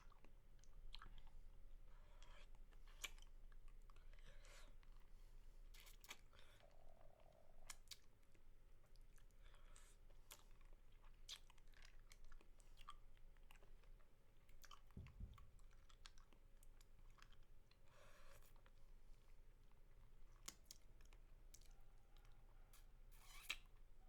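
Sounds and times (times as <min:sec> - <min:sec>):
low thump: 0:15.0 - 0:15.6.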